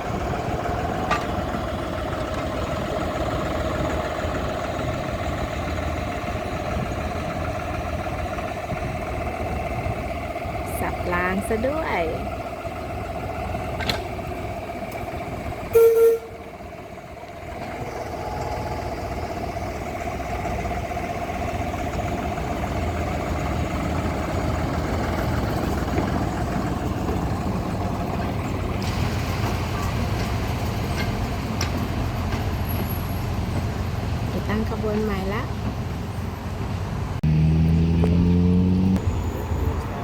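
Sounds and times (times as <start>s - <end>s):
steam locomotive running: 0.0s - 37.2s
steam whistle toot: 15.7s - 16.5s.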